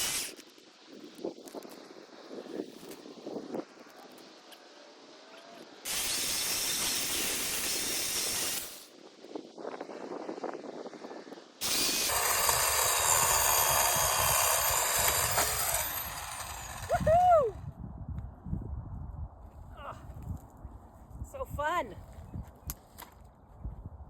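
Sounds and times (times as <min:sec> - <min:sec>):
electric chainsaw cutting branch: 0:00.0 - 0:00.4, 0:05.9 - 0:08.9, 0:11.6 - 0:17.1.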